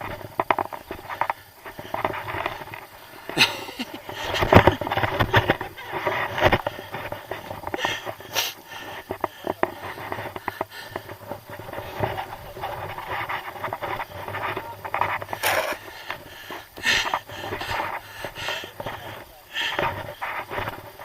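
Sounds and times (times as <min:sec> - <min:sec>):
person breathing hard: 0:01.0 - 0:11.8, 0:15.3 - 0:20.8
scrapes and clicks: 0:09.1 - 0:16.2.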